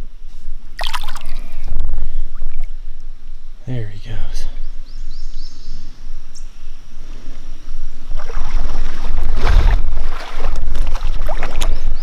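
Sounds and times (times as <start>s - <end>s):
creek water splashing: 0.8s - 1.7s, 6.9s - 12.0s.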